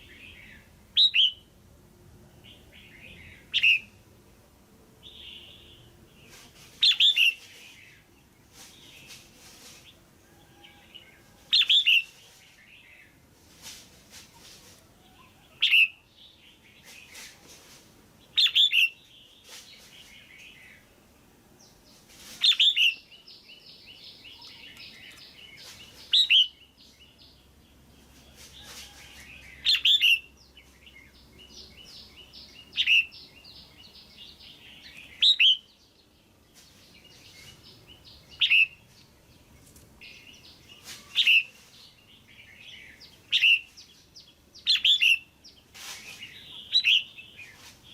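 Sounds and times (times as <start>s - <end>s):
faint bird chirping: 2.3s - 4.0s, 5.0s - 47.9s
bulbul calling: 2.9s - 4.0s, 38.3s - 38.8s.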